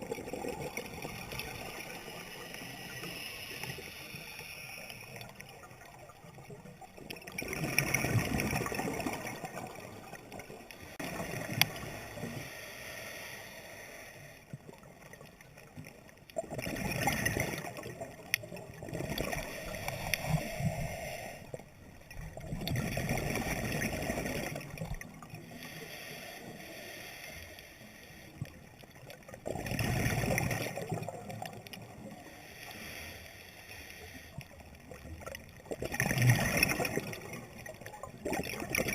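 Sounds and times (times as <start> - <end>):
diver breathing through regulator: 1.5 - 5.4, 10.8 - 14.5, 19.0 - 21.6, 25.4 - 28.5, 32.1 - 34.6
diver exhaling bubbles: 35.8 - 38.9.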